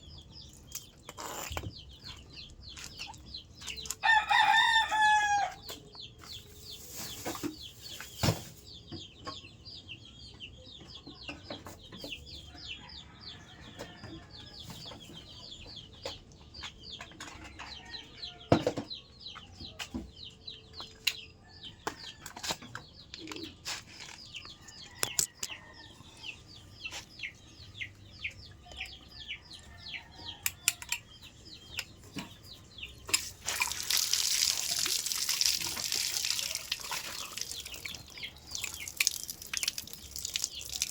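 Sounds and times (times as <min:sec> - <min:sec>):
birds chirping: 0:00.0 - 0:40.9
water gushing from pipe: 0:33.4 - 0:40.9.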